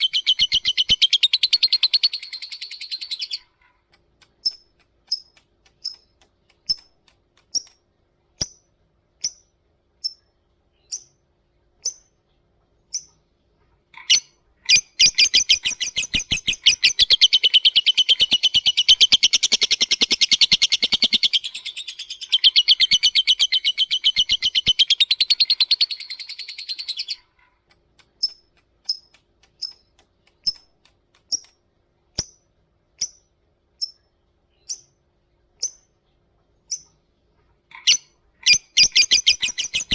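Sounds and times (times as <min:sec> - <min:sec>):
lovebird high chirps: 0:00.0 - 0:03.5, 0:10.8 - 0:11.2, 0:14.0 - 0:27.3, 0:37.7 - 0:39.9
lovebird rattling chatter: 0:15.0 - 0:27.2, 0:37.8 - 0:39.9.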